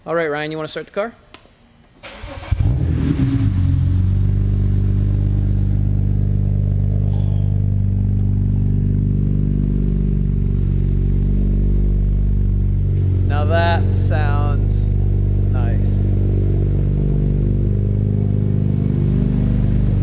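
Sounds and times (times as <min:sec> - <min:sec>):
car engine cranking: 0:02.0 - 0:08.2
car engine idling: 0:02.5 - 0:20.0.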